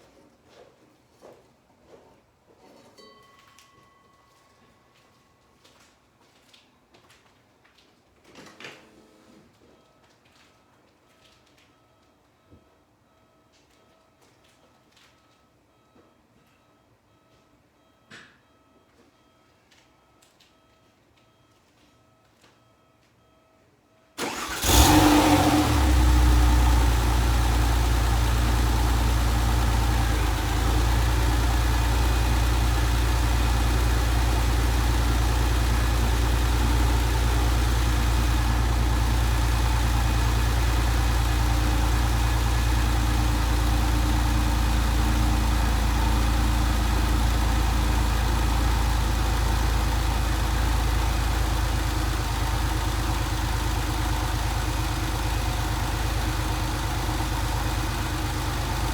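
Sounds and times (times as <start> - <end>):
car engine starting and idling: 24.2 - 58.9.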